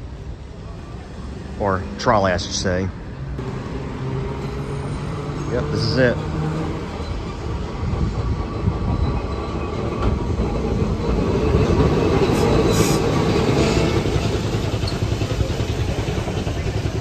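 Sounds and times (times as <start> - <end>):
streetcar rumbling on rails: 0.0 - 17.0
short hisses: 12.3 - 13.9.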